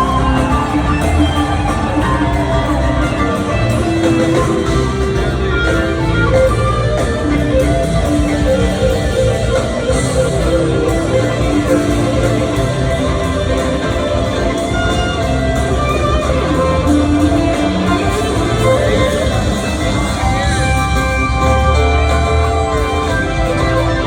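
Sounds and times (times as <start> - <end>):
bass and drum groove: 0.0 - 24.0
electric guitar sustaining notes: 0.0 - 24.0.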